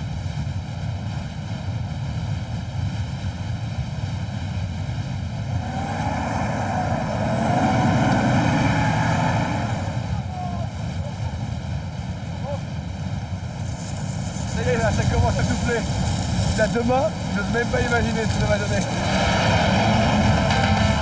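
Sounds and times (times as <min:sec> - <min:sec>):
strong wind blowing: 0:05.3 - 0:11.4, 0:13.3 - 0:21.0
faint wavering whistling: 0:05.5 - 0:10.8.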